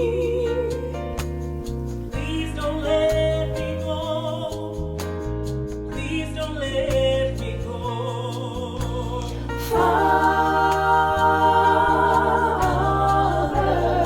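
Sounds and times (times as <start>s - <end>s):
bass guitar sustained notes: 0.0s - 14.0s
singers in harmony: 7.8s - 14.0s.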